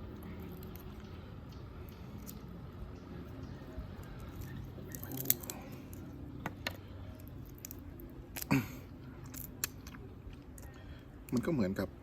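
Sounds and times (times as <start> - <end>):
crab shell cracking: 4.1 - 6.1, 7.2 - 11.4.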